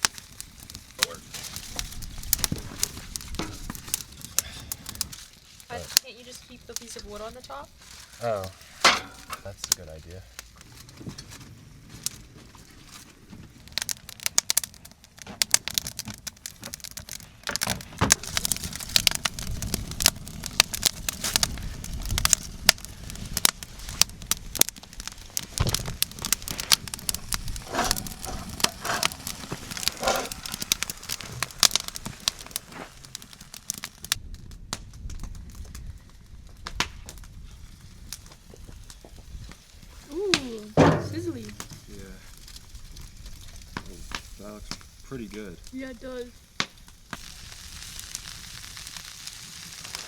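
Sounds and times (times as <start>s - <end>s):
fire pops and snaps: 0.0s - 50.0s
wood campfire crackling: 0.0s - 50.0s.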